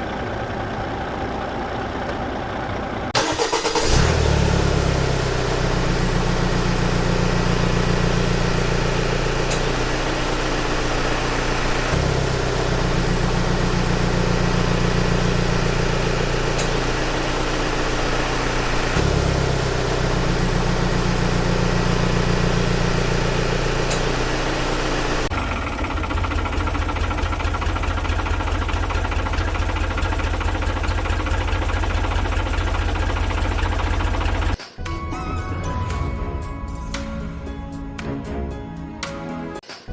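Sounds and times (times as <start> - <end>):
low engine drone: 0.0 - 26.2
engine idling: 0.0 - 34.6.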